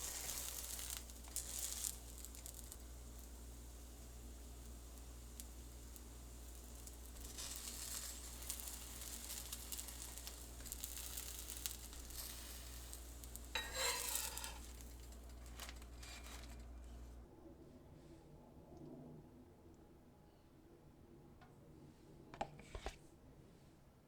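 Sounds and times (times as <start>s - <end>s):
fritters sizzling in hot oil: 0.0s - 17.0s.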